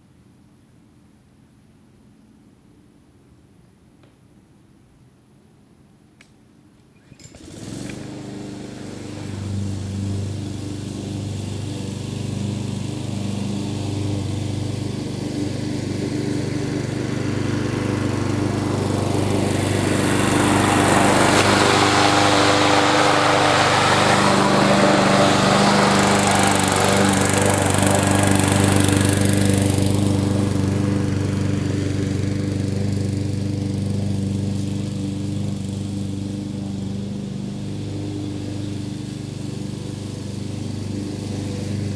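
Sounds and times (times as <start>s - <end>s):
lawn mower cutting grass: 7.1s - 41.9s.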